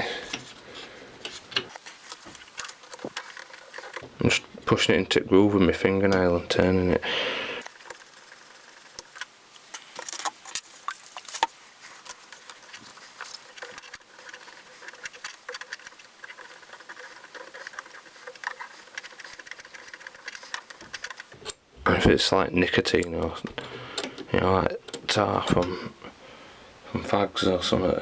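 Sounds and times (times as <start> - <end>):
fingernail scratching pulley: 2.0 - 4.0, 7.6 - 9.3, 11.8 - 21.4.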